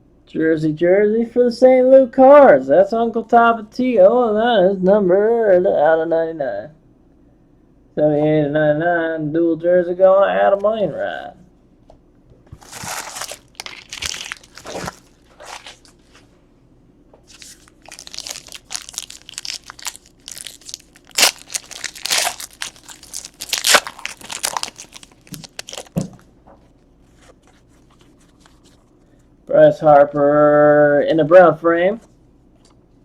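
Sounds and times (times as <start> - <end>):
card pack wrappers crinkling: 12.5 - 16.2, 17.2 - 28.9.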